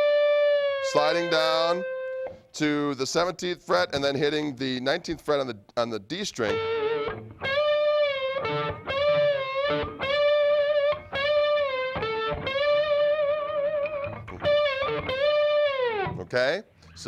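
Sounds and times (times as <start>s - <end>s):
slide electric guitar notes: 0.0s - 2.6s, 6.4s - 16.3s.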